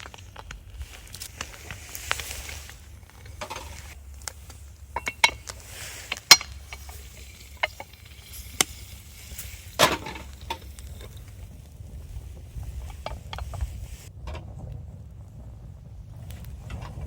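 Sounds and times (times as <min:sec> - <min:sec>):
metal cookware clicking and knocking: 0:04.8 - 0:11.7.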